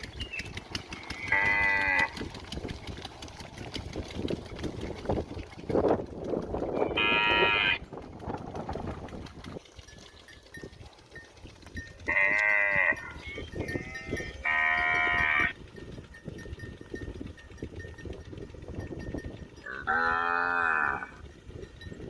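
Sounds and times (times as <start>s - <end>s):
cow mooing: 1.0s - 2.2s, 6.8s - 7.9s, 12.1s - 15.6s, 19.6s - 21.2s.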